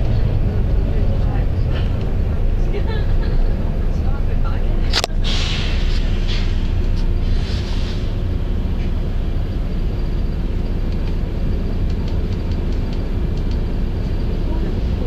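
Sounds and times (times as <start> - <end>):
bus engine and road drone: 0.0 - 15.0
hiss: 5.2 - 8.1.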